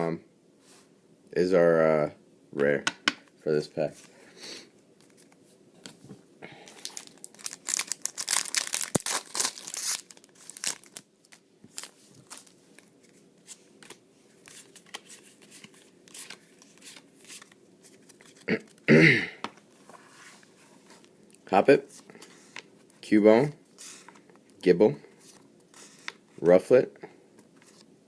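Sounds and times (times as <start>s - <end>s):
foil wrapper tearing and crinkling: 6.7s - 12.5s.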